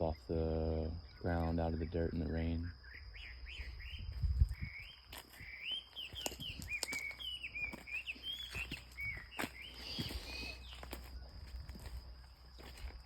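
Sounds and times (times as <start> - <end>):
high insect drone: 0.0 - 13.0
bird whistling chirps: 2.6 - 10.9
footsteps: 6.1 - 13.0.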